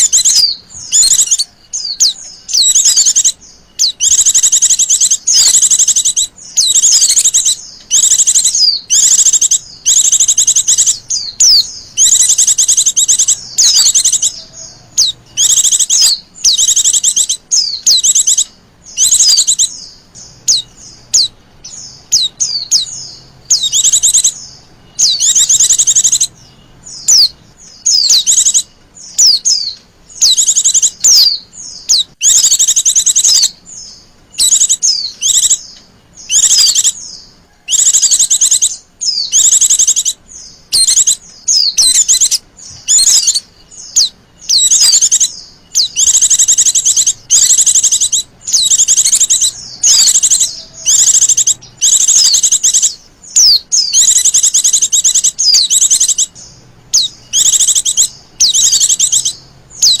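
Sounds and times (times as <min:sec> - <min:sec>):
bird trilled chirps: 0:00.0 - 1:00.0.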